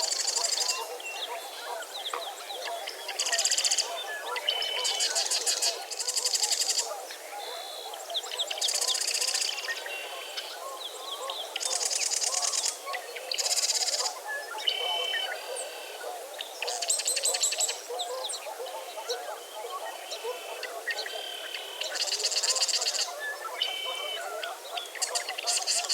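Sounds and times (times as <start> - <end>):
dense chatter of bird calls: 0.0 - 25.9.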